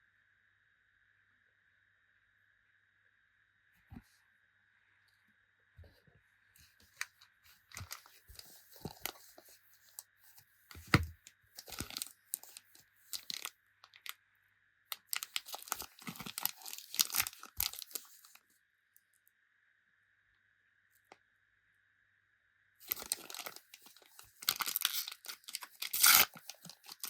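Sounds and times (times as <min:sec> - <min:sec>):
card wrappers torn and crinkled: 0:06.9 - 0:10.0, 0:10.7 - 0:14.1, 0:14.9 - 0:18.4, 0:22.8 - 0:27.0.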